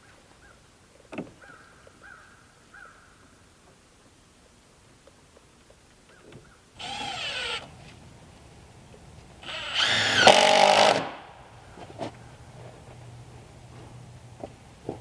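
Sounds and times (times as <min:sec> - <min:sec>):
power drill whining: 0:06.8 - 0:07.8, 0:09.4 - 0:11.4.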